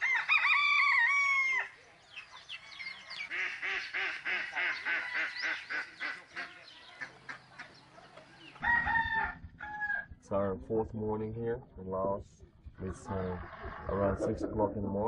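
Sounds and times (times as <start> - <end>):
rooster crowing: 0.0 - 1.8, 4.6 - 5.4, 8.5 - 10.2
short repeated fowl calls: 3.1 - 10.0.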